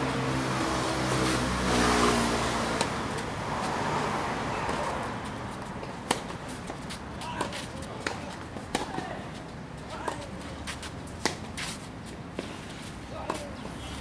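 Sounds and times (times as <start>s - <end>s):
tennis ball racquet strikes: 2.8s - 3.3s, 5.8s - 9.1s.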